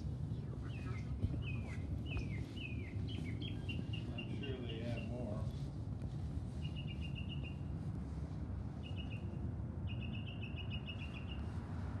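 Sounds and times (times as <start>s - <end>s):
steady low rumble: 0.0s - 12.0s
small bird chirping: 0.6s - 5.1s, 6.6s - 7.7s, 8.8s - 11.5s.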